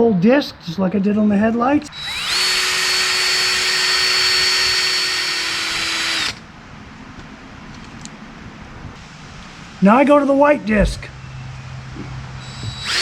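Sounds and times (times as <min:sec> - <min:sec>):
electric drill motor whining: 0:01.9 - 0:06.4, 0:12.4 - 0:13.0.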